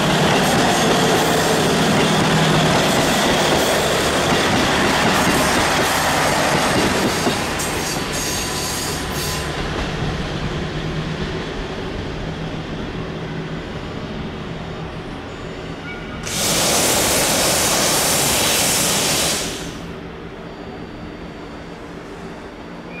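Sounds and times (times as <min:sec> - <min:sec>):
diesel train rumble: 0:00.0 - 0:23.0
loud even hiss: 0:16.2 - 0:20.0.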